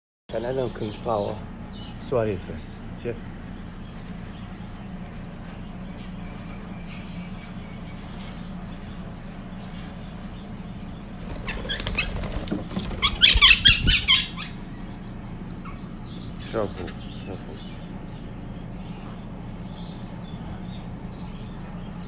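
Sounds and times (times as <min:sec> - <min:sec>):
parrot flapping wings: 0:11.2 - 0:14.2.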